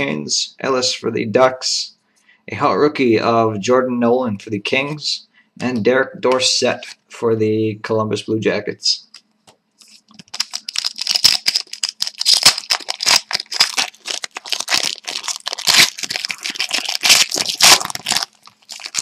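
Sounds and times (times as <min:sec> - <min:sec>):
cards rustling and clicking: 0:09.1 - 0:19.0
wrapper tearing and crinkling: 0:09.8 - 0:19.0.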